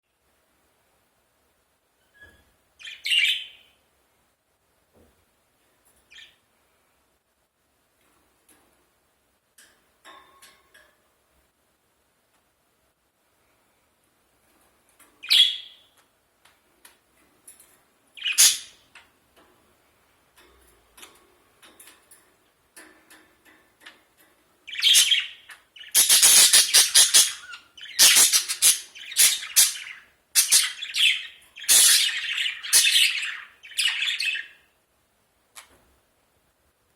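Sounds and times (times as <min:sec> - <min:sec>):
faint budgerigar chirps: 0:02.0 - 0:03.8, 0:06.1 - 0:06.4, 0:15.2 - 0:16.0, 0:18.2 - 0:18.8, 0:24.7 - 0:34.7
budgerigar sharp calls: 0:18.2 - 0:18.8, 0:24.8 - 0:34.5.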